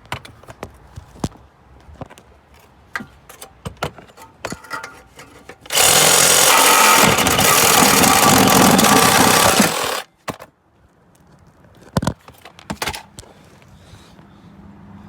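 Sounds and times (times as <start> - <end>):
power saw cutting metal pipe: 5.7 - 10.0.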